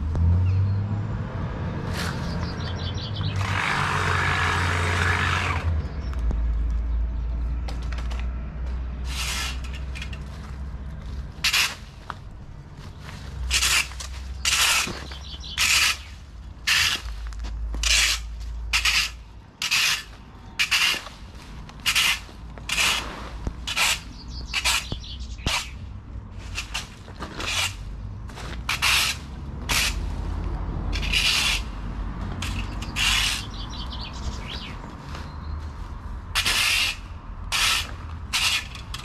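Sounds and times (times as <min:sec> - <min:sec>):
broom scraping strokes: 0:01.8 - 0:02.4, 0:09.0 - 0:10.5, 0:12.9 - 0:31.8, 0:32.4 - 0:38.8.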